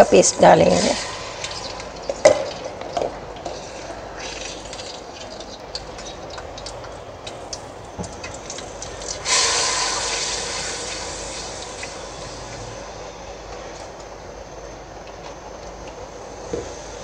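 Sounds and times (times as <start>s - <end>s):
loud sizzle in pan: 0.0s - 13.8s
paste popping and crackling in oil: 1.1s - 10.4s.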